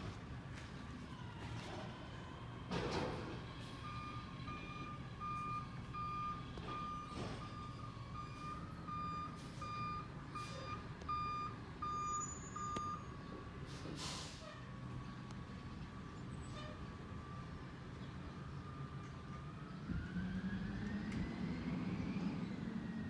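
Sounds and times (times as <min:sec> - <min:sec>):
truck backup alarm beeping: 0:02.6 - 0:15.1.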